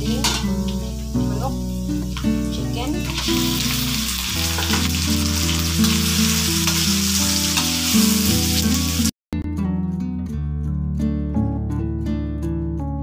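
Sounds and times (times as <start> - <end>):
chicken sizzling in hot oil: 0.0 - 9.1.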